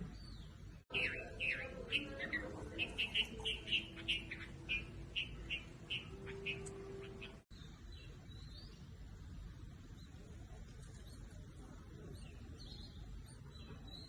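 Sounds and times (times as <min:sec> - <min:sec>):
small bird chirping: 0:00.1 - 0:08.8.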